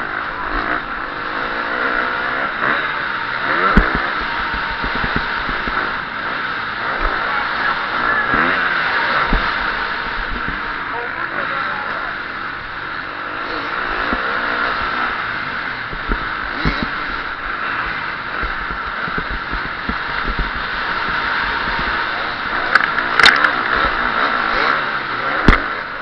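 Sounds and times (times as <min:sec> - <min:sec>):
motocross engine revving: 0:00.0 - 0:26.0
low thuds: 0:03.7 - 0:06.1, 0:09.2 - 0:10.8, 0:15.8 - 0:22.0
sharp click: 0:22.7 - 0:23.7.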